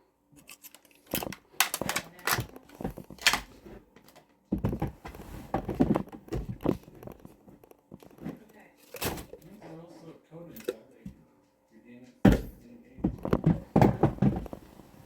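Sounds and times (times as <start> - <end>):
plastic parts rattling: 0.4 - 4.2.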